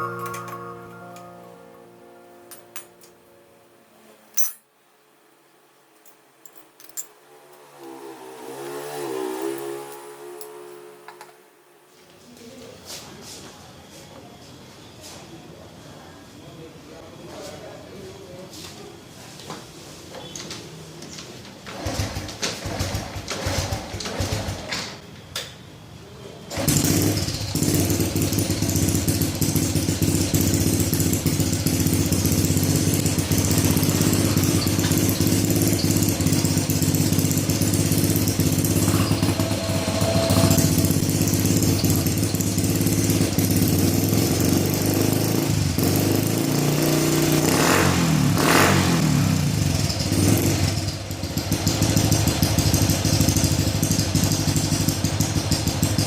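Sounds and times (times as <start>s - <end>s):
motorcycle engine starting and idling: 7.2s - 11.4s, 20.3s - 25.1s, 26.5s - 56.0s
motorcycle engine revving: 7.3s - 11.4s, 21.7s - 24.7s, 26.5s - 56.0s.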